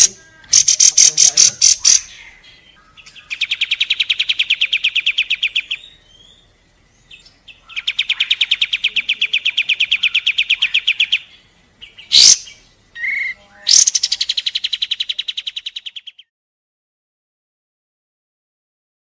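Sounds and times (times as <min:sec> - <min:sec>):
bird sharp call: 0:00.0 - 0:02.4
bird singing fast trill: 0:00.0 - 0:16.3.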